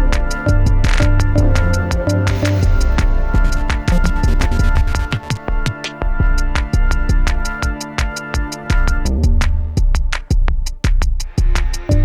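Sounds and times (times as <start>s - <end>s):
electronic dance music: 0.0s - 9.1s.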